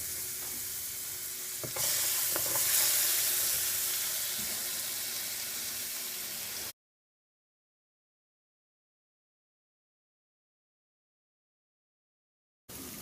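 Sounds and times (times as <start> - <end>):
sauce sizzling in a pan: 0.0 - 6.8, 12.7 - 13.0
spoon knocking on pan: 1.6 - 2.9.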